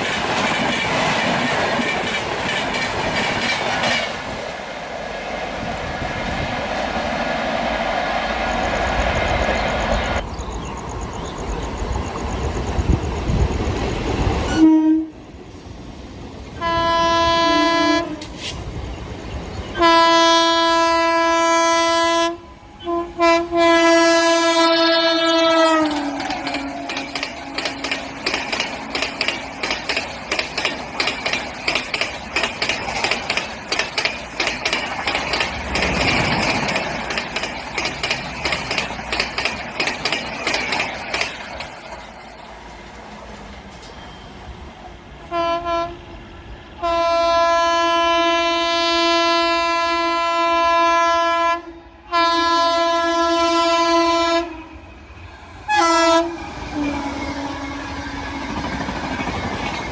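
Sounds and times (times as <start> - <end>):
train wheels clicking over rail joints: 0.0 - 4.6, 18.1 - 19.2, 24.7 - 45.0, 56.3 - 59.9
locomotive horn blasts: 14.5 - 15.2, 16.6 - 18.4, 19.8 - 28.2, 45.3 - 46.2, 46.8 - 54.7, 55.7 - 58.2.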